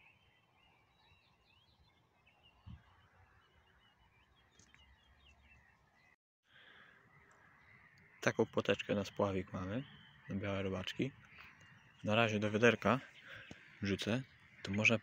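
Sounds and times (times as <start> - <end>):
birdsong chirps and whistles: 0.0 - 15.0.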